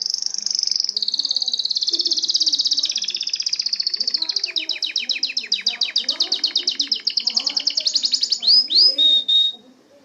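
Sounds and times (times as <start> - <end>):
canary singing: 0.0 - 10.0.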